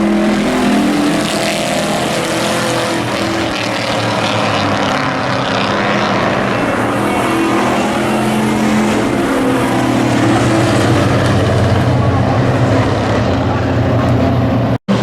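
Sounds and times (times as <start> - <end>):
race truck engines droning: 0.0 - 15.0.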